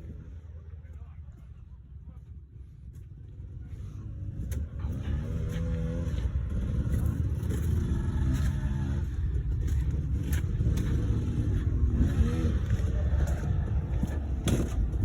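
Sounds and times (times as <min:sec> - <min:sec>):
dirt bike engine revving: 0:03.8 - 0:15.0.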